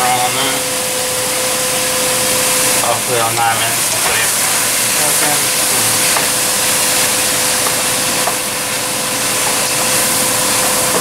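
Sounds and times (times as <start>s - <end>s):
vegetables sizzling in a pan: 2.3s - 11.0s.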